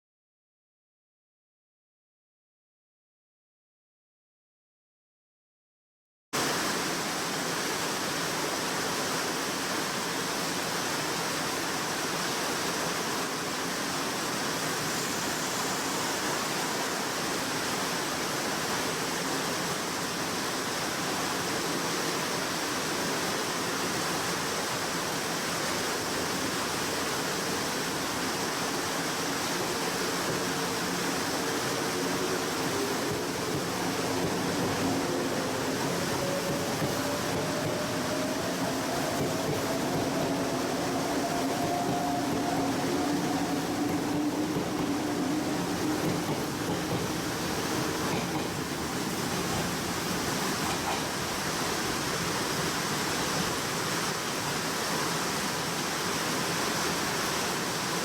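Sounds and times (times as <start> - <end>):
heavy rain pouring: 23.0 - 58.0
train motors whining: 29.2 - 51.6.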